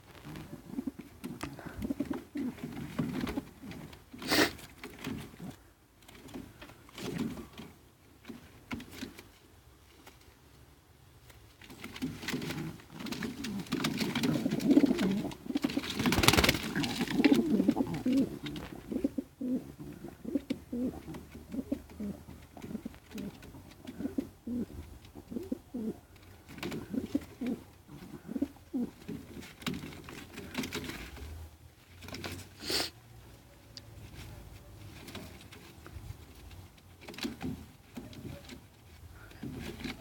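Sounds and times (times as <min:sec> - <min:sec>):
pigeons cooing: 0:00.3 - 0:05.6, 0:12.3 - 0:31.0.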